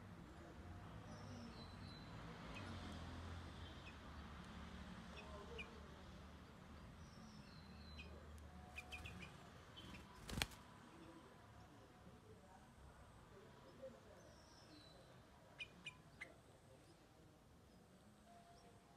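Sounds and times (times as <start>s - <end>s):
faint bird chirps: 6.8s - 11.8s, 13.6s - 18.9s.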